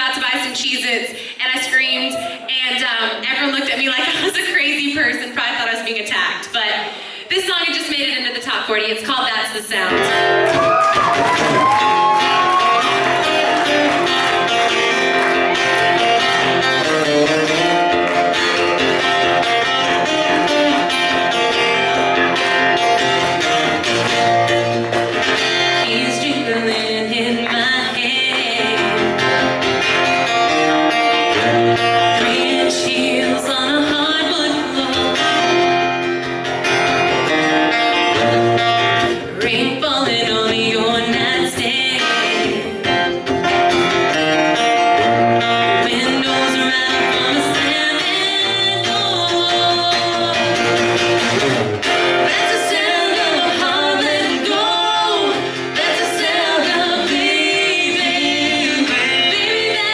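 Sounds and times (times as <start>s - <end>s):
acoustic guitar: 0.0s - 59.9s
person singing: 25.7s - 35.7s, 39.2s - 43.1s, 45.4s - 50.8s, 52.2s - 59.9s.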